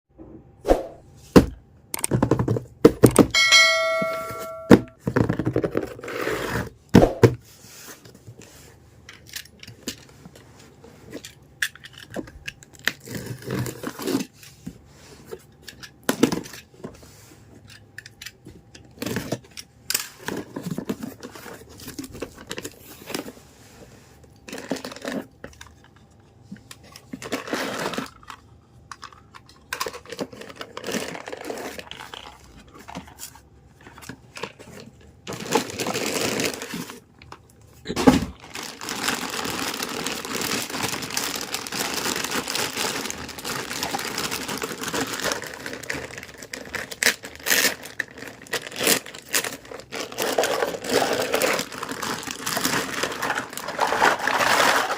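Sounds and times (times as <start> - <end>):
small pieces clicking and knocking: 11.2 - 13.0
packaging tearing and crinkling: 11.2 - 14.4, 24.4 - 25.9, 26.8 - 54.9.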